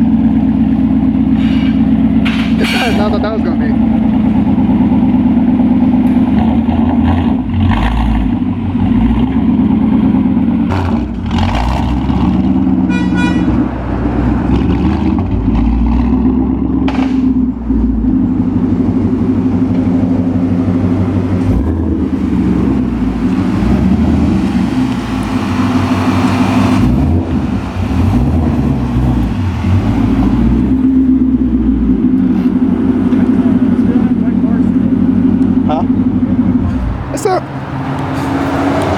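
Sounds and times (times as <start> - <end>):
car exhaust rumbling: 0.0 - 38.9.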